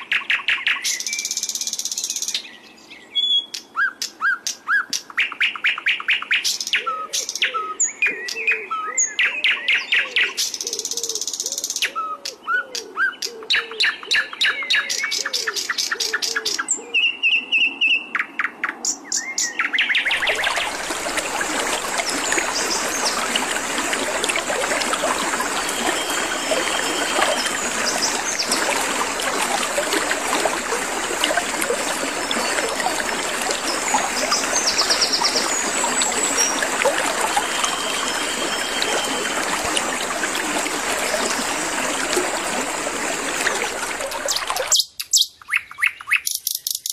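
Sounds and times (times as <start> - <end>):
bird chirps and trills: 13.1 - 39.8, 43.9 - 46.9.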